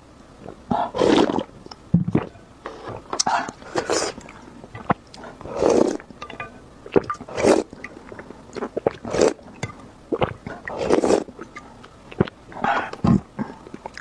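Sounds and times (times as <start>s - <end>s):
wet noodle slurps: 1.0s - 1.5s, 3.4s - 4.2s, 5.2s - 6.1s, 6.9s - 7.8s, 8.6s - 9.4s, 10.1s - 11.4s
chewing: 3.1s - 14.0s.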